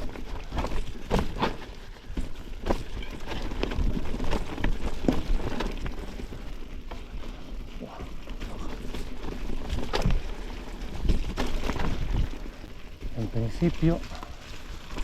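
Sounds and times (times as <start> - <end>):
bike knocking and rattling: 0.0 - 15.0
bike tyres crunching leaves: 0.0 - 15.0.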